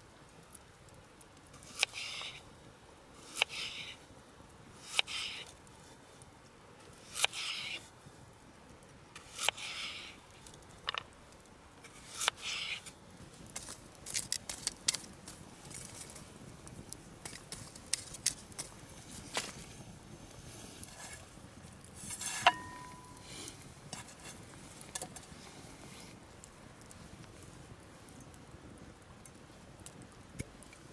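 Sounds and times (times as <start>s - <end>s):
short metallic ring: 22.4s - 23.2s.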